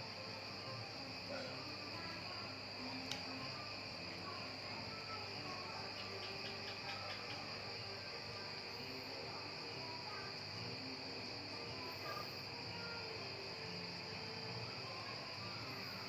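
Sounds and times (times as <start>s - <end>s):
crickets chirring: 0.0s - 16.0s
soft ticks: 3.0s - 3.3s.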